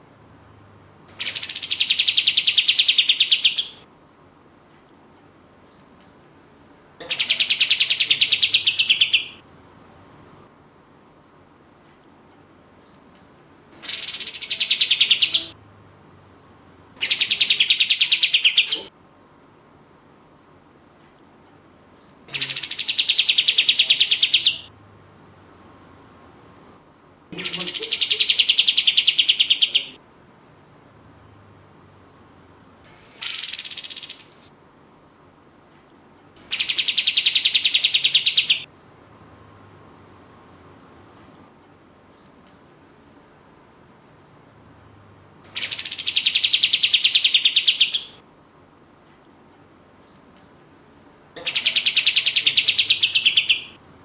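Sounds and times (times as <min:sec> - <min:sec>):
songbird stuttering trills: 0:27.4 - 0:30.0, 0:45.6 - 0:48.2
bird rattling trills: 0:33.2 - 0:34.4.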